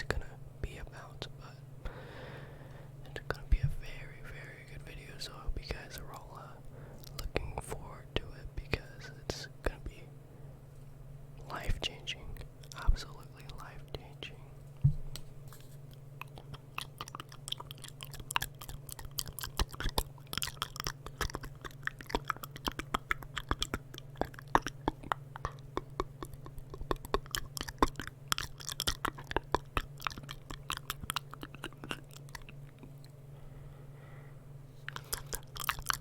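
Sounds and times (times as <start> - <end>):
mouth clicks and smacks: 7.0 - 7.7, 15.9 - 33.2, 34.9 - 36.0.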